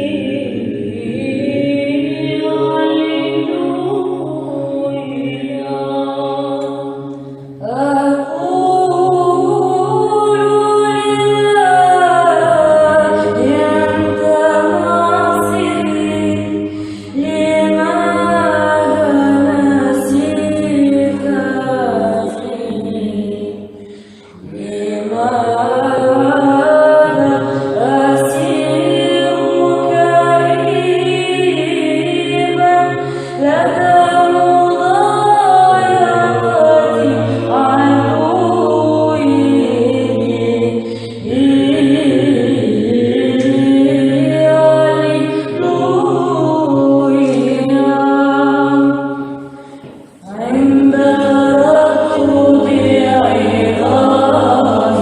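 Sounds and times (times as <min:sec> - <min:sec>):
women's choir chanting: 0:00.0 - 0:55.0.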